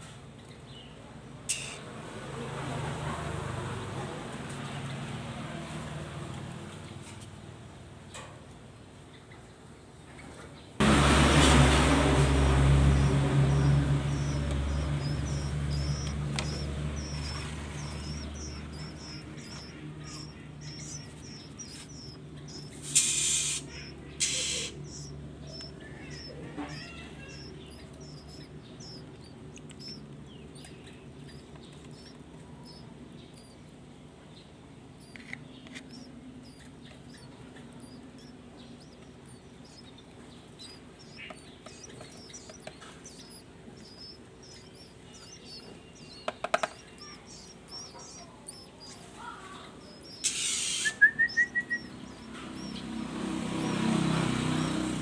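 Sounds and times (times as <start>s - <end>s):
songbirds chirping: 0.0s - 55.0s
loud noisy bursts: 10.8s - 25.1s.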